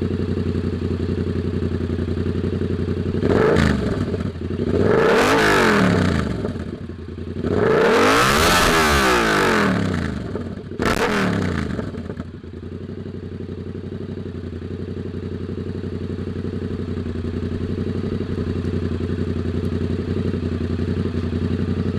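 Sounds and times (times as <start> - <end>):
engine idling: 0.0 - 5.3, 11.7 - 21.9
engine revving: 3.1 - 6.8, 7.4 - 12.2.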